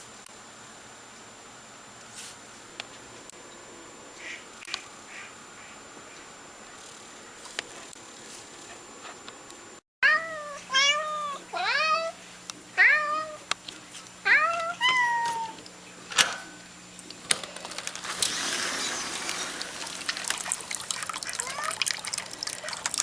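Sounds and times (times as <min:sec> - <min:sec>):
cat meowing: 0:10.0 - 0:12.2.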